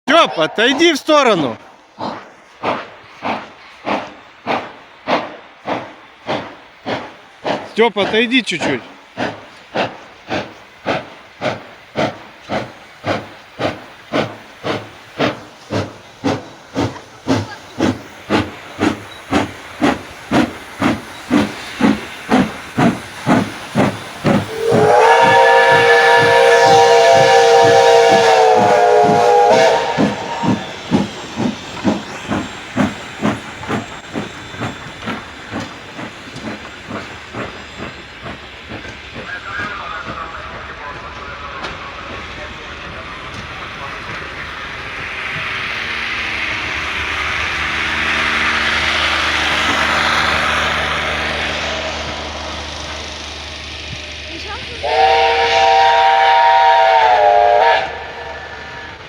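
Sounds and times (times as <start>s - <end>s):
steam locomotive chuffing: 0.1s - 59.0s
steam whistle blast: 24.4s - 30.8s, 54.8s - 59.0s.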